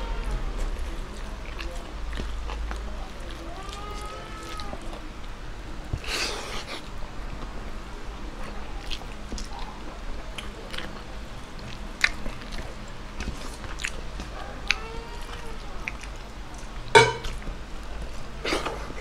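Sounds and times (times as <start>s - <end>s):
close-up chewing: 0.0s - 19.0s.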